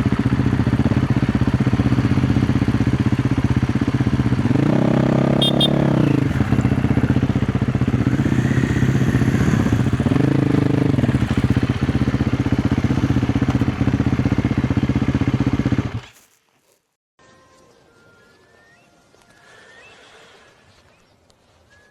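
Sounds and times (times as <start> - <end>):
dirt bike engine revving: 0.0 - 16.1.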